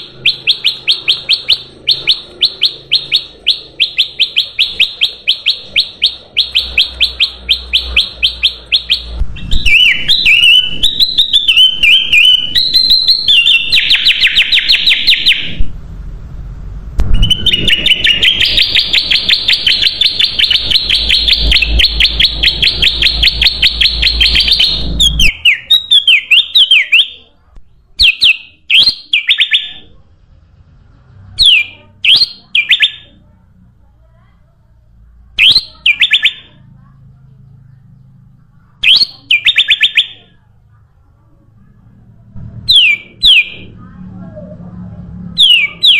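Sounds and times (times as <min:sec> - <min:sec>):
bulbul chattering and warbling: 0:00.0 - 0:15.6, 0:17.1 - 0:27.3, 0:35.4 - 0:36.6, 0:37.3 - 0:40.4
low rumble: 0:15.5 - 0:19.0, 0:40.5 - 0:45.4.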